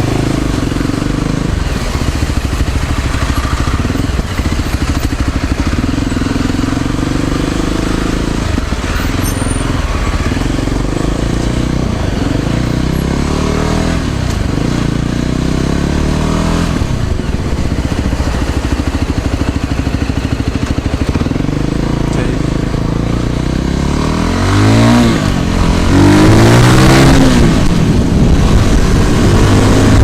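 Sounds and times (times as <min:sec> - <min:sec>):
motor scooter engine running: 0:00.0 - 0:13.0, 0:16.7 - 0:26.1.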